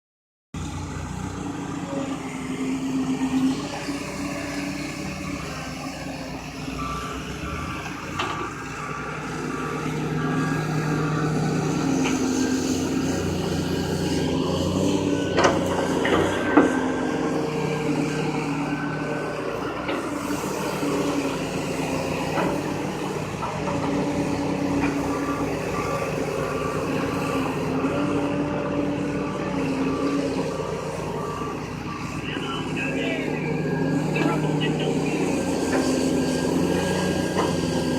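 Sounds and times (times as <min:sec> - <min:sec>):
diesel engine running: 0:00.6 - 0:37.9
back-up alarm beeping: 0:03.7 - 0:37.9.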